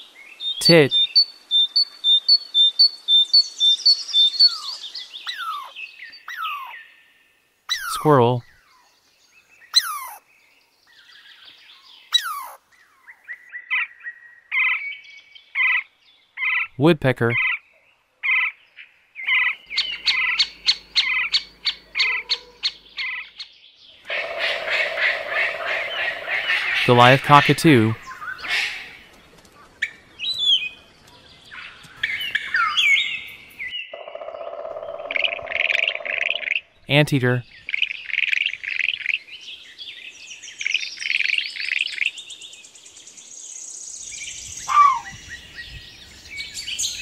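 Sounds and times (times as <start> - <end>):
bird chirps: 0.2 - 47.0
cockatoo whistled calls: 0.9 - 5.7, 9.7 - 10.2, 12.1 - 12.6, 44.7 - 45.3
squirrel squealing cries: 4.4 - 5.7, 7.7 - 8.1, 9.8 - 10.2, 12.1 - 12.6, 19.3 - 23.3, 44.7 - 45.2.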